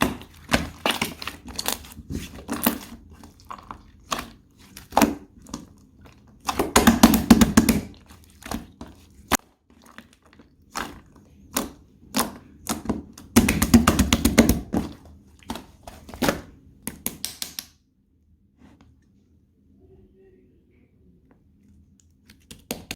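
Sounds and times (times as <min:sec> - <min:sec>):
fingers tapping soft clay: 0:11.5 - 0:17.7.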